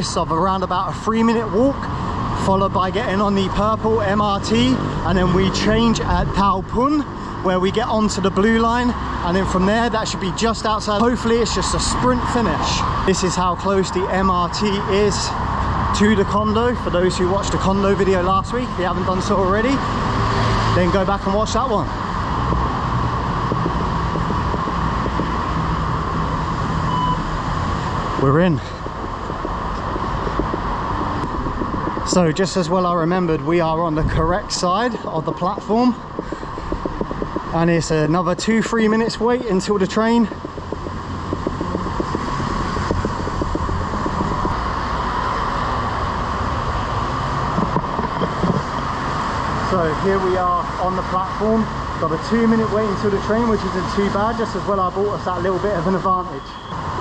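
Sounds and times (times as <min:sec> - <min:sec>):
road traffic: 0:00.0 - 0:57.0
short electronic beep: 0:26.9 - 0:27.2, 0:56.3 - 0:56.8.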